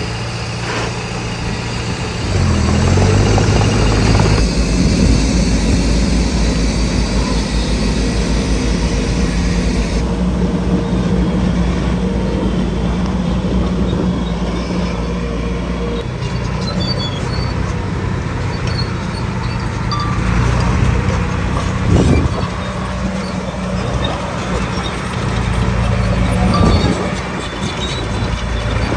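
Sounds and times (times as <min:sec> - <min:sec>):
heavy diesel engine running: 0:00.0 - 0:28.9.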